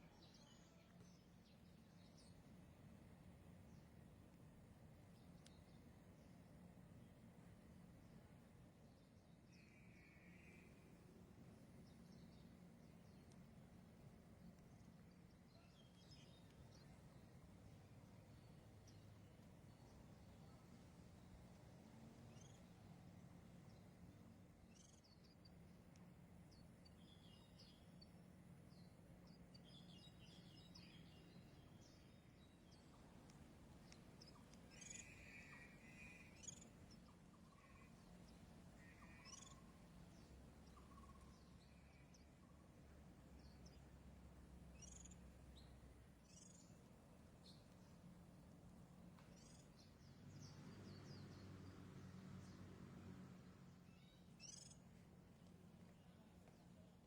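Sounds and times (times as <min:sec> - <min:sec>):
birds chirping and twittering: 0:09.3 - 0:52.7, 0:53.3 - 0:56.9.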